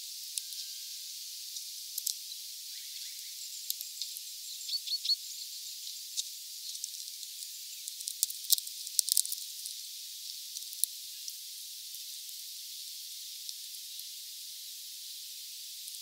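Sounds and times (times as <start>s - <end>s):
steady high hiss: 0.0s - 16.0s
bird pecking and cracking seeds: 6.2s - 9.8s.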